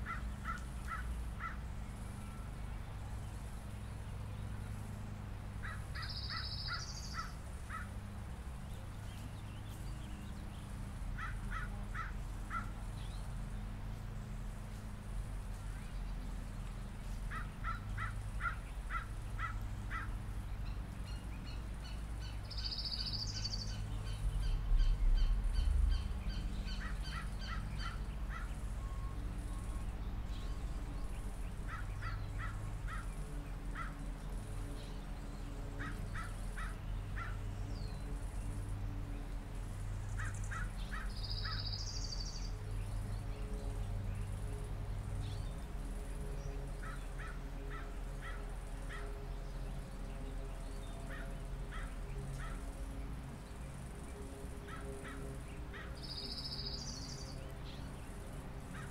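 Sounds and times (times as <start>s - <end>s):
low background rumble: 0.0s - 47.1s
birds calling: 0.0s - 58.9s.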